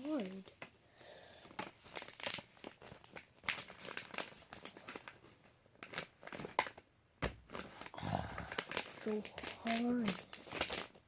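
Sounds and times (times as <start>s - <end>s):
paper folding and crinkling: 0.0s - 0.8s, 1.4s - 6.8s, 7.4s - 11.0s.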